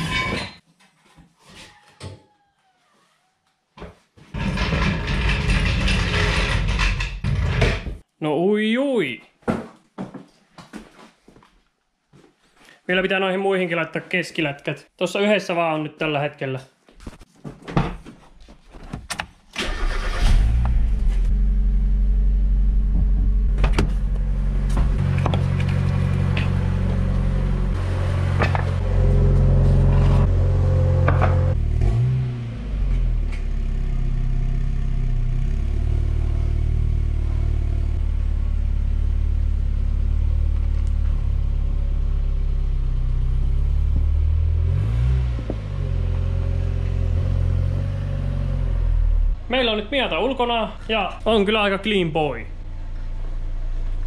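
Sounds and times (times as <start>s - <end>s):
car engine starting and running: 19.1s - 54.0s.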